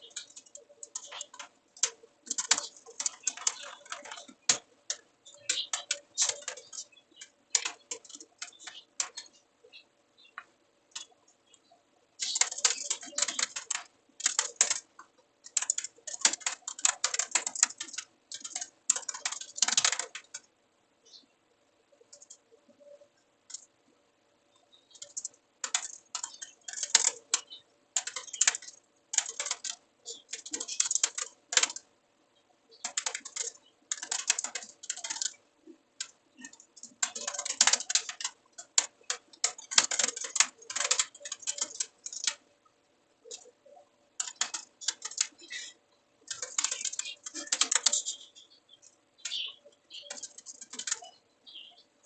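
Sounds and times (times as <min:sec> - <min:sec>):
computer keyboard typing: 0:00.0 - 0:09.4, 0:12.2 - 0:20.5, 0:24.9 - 0:31.9, 0:32.8 - 0:35.4, 0:36.0 - 0:42.4, 0:43.2 - 0:48.4, 0:49.2 - 0:51.2
faint steady hum: 0:00.0 - 0:52.0.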